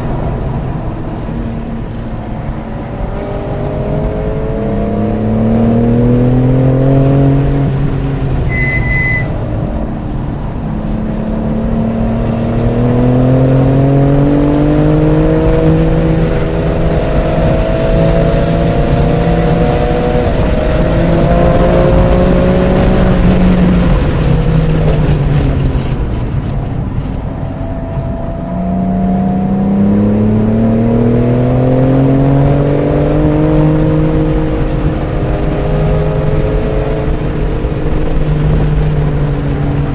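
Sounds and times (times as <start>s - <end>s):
car engine accelerating hard: 0.0s - 39.9s
brief high beep: 8.5s - 9.4s.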